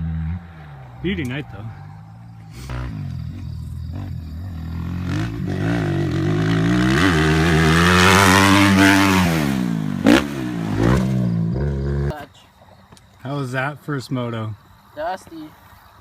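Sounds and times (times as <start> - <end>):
dirt bike engine running: 0.0 - 12.2
dirt bike passing by: 0.0 - 12.2.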